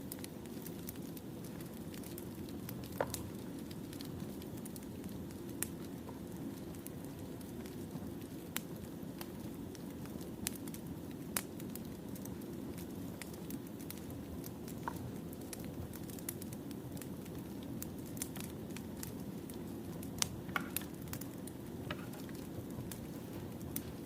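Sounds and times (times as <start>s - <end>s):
fire burning: 0.0s - 24.0s
firewood crackling and popping: 0.0s - 24.0s.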